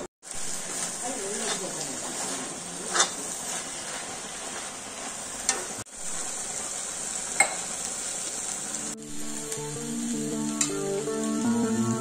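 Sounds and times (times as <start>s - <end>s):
food sizzling in a wok: 0.0s - 12.0s
metal spatula scraping pan: 0.7s - 4.7s.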